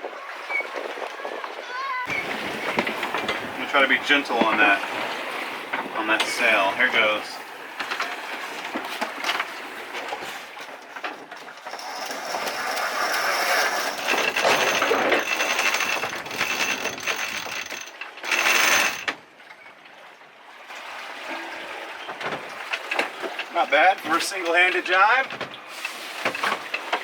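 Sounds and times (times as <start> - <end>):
winch ratcheting clicks: 11.4 - 19.2.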